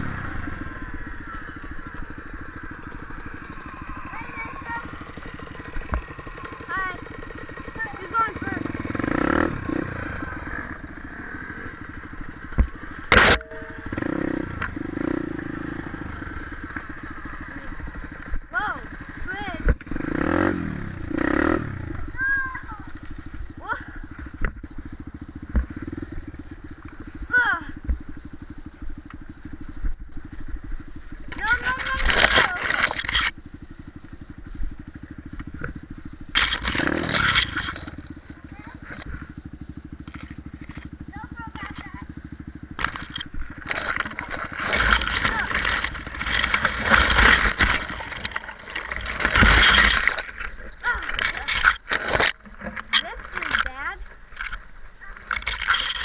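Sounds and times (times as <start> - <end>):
dirt bike engine running: 0.0 - 56.0
loud scraping clatter: 6.8 - 23.2, 31.2 - 33.3, 36.2 - 39.2, 40.0 - 56.0.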